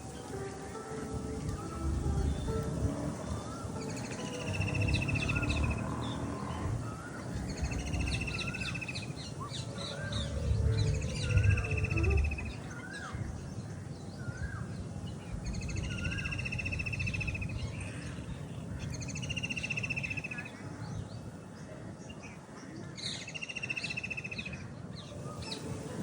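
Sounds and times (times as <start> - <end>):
low background rumble: 1.0 - 19.4
bird rapid trill: 3.2 - 13.3.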